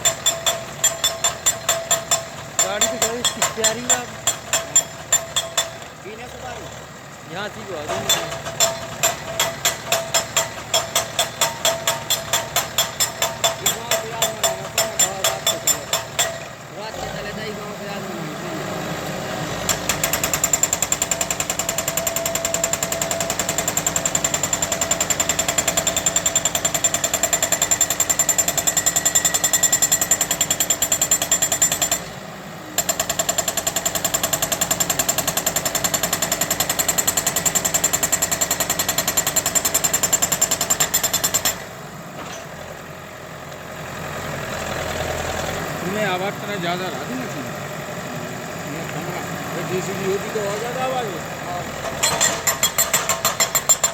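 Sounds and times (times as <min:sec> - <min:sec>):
rapid mechanical hammering: 0:00.0 - 0:05.9, 0:07.9 - 0:16.4, 0:19.7 - 0:32.1, 0:32.8 - 0:41.6, 0:52.0 - 0:53.9
tractor engine idling: 0:00.0 - 0:53.9.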